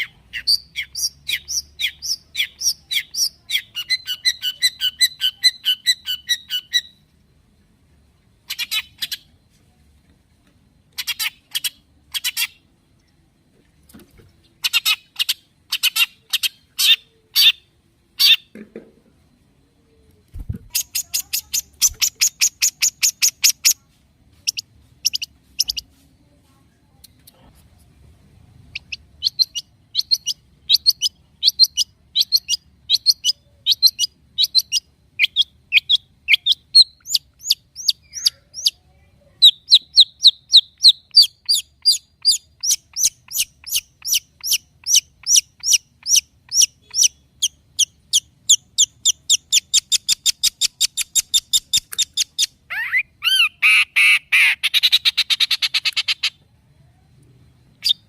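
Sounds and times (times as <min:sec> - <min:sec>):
bird harsh chattering: 0:00.0 - 0:06.9, 0:11.0 - 0:12.6, 0:14.6 - 0:18.5, 0:20.6 - 0:23.8, 0:39.4 - 0:56.4
bird chirping and trilling: 0:00.0 - 0:07.0, 0:08.5 - 0:09.3, 0:11.0 - 0:12.6, 0:14.6 - 0:18.5, 0:20.4 - 0:23.8, 0:24.4 - 0:25.8, 0:28.7 - 0:38.8, 0:39.4 - 0:56.4, 0:57.8 - 0:58.0.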